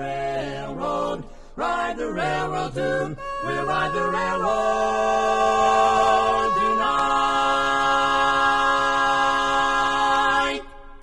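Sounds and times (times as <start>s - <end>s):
a cappella group singing chord: 0.0s - 11.0s.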